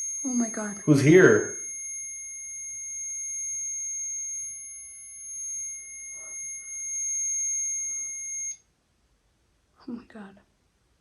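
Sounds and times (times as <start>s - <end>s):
high electronic alarm tone: 0.0s - 8.6s.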